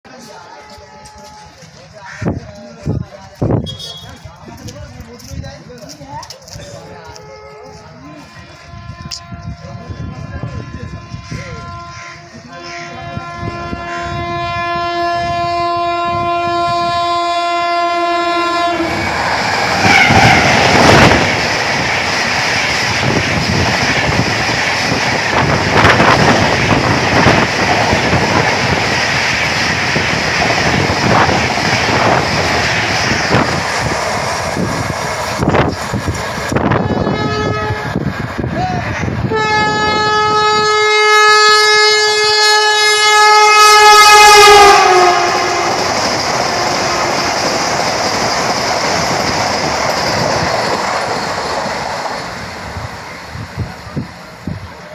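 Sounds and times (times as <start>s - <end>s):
long train horn: 0.1s - 1.8s, 3.6s - 4.2s, 6.7s - 21.3s, 36.6s - 38.1s, 39.0s - 47.2s
train rushing past: 0.1s - 54.9s
locomotive horn chord: 6.8s - 19.0s, 36.7s - 38.0s, 39.3s - 46.0s
wheels clacking over rail joints: 45.4s - 52.7s.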